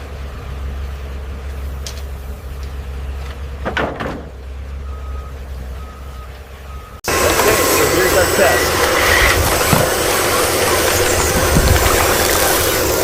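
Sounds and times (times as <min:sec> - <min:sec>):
truck engine rumbling: 0:00.0 - 0:13.0
sharp clunks: 0:03.6 - 0:04.4
reversing beeps: 0:04.7 - 0:07.0.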